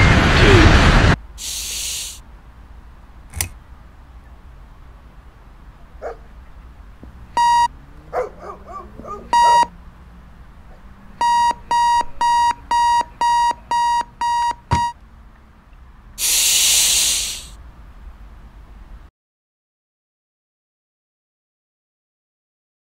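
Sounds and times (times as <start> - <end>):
person shushing: 1.4 - 2.2, 16.2 - 17.6
alarm clock beeping: 7.4 - 7.7, 9.3 - 9.7, 11.2 - 15.0.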